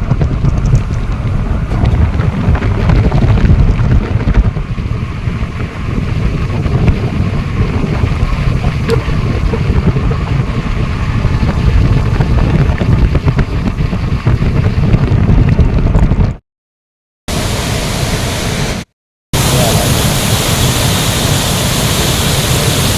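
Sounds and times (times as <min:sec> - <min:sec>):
wind buffeting microphone: 0:00.0 - 0:16.4
waterfall roaring: 0:05.7 - 0:12.1, 0:17.3 - 0:22.9.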